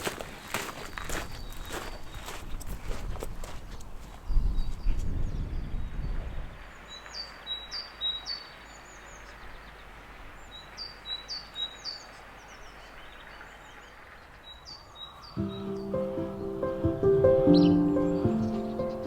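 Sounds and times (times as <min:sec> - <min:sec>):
faint outdoor hiss: 0:06.6 - 0:19.0
songbird singing high phrases: 0:14.5 - 0:19.0.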